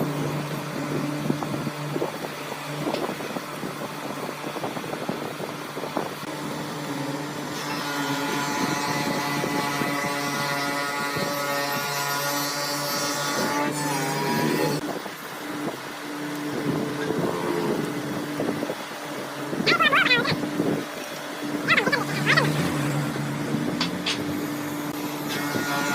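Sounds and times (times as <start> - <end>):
power tool motor whine: 21.5 - 25.9.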